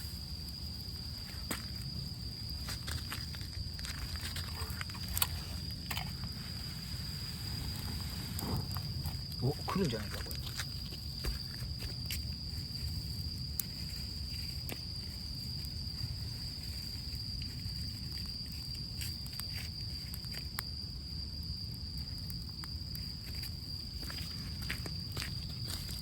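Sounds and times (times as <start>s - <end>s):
campfire crackling and popping: 0.0s - 26.0s
high insect trill: 0.0s - 26.0s
low fire rumble: 0.0s - 26.0s.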